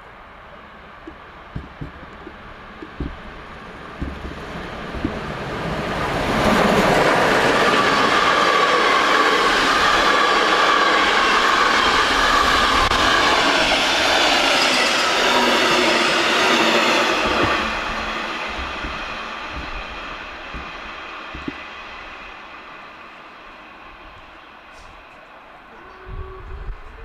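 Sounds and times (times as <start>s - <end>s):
steam train passing: 0.0s - 27.0s
wheels clattering over rail joints: 0.4s - 8.4s, 15.8s - 22.6s.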